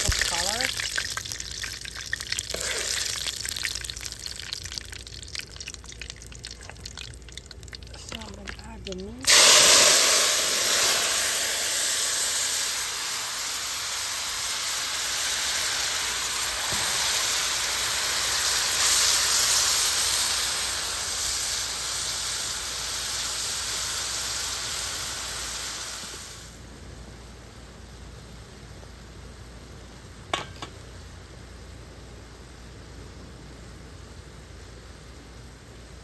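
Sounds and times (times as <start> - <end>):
chicken sizzling in a pot: 0.0 - 26.7.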